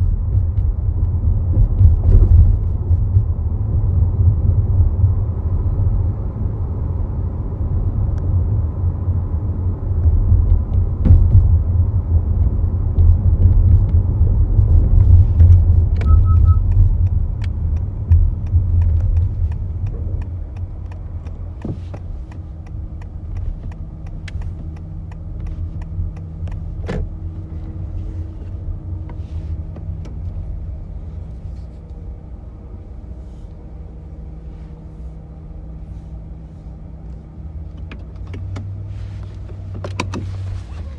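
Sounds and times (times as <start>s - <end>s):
car road rumble: 0.0s - 40.9s
quick beeps: 16.0s - 16.7s.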